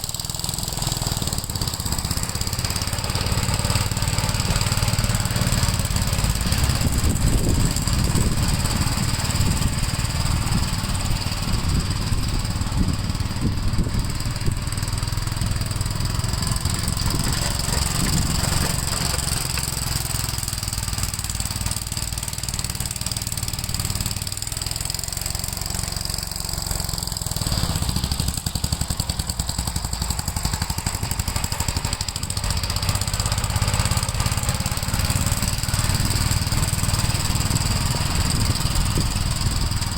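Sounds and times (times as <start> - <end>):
walk-behind tractor engine running: 0.0 - 39.9.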